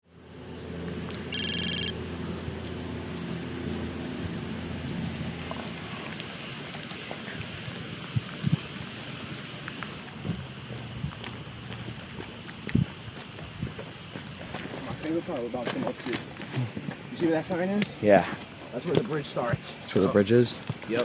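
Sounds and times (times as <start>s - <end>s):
high-pitched electronic beep: 1.3s - 1.9s.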